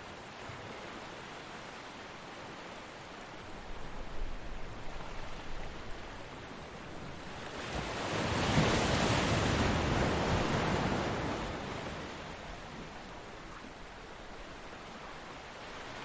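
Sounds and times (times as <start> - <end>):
ocean wave breaking: 7.3 - 13.0.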